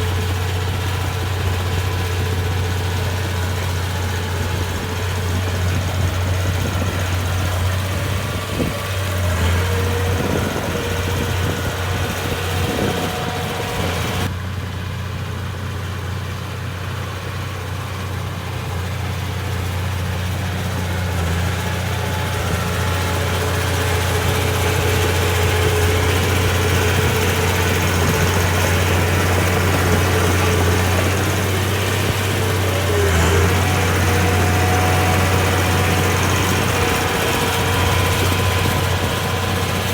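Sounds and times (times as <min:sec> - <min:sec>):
diesel engine droning: 0:00.0 - 0:39.9
engine clatter: 0:00.0 - 0:39.9.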